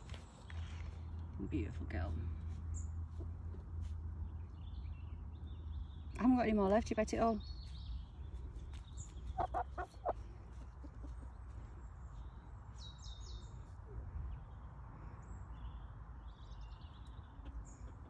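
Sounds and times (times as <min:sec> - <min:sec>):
bird chirps: 0:07.4 - 0:10.2.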